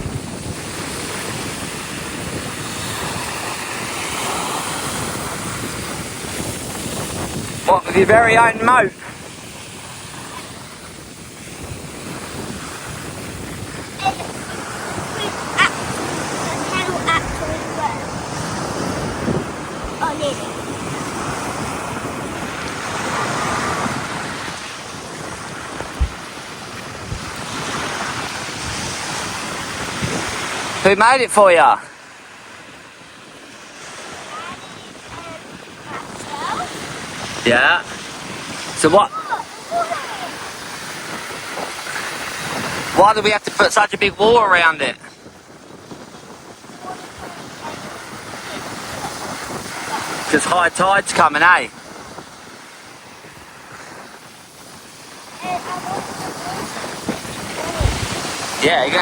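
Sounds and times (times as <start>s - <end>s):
dull buffets: 0.0s - 28.9s, 55.4s - 59.0s
waves washing onto beach: 0.0s - 59.0s
wind on microphone: 0.0s - 59.0s.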